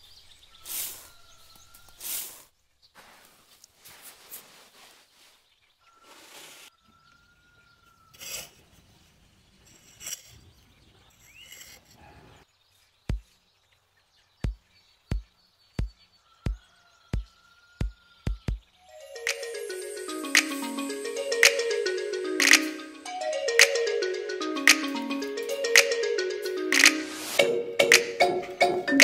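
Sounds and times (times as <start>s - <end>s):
sharp taps: 18.3s - 18.6s.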